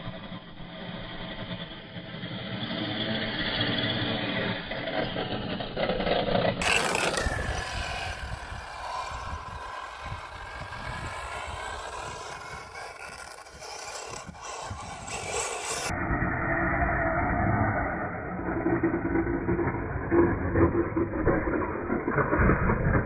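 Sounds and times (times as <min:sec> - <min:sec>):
toy truck motor whine: 0:06.6 - 0:15.9.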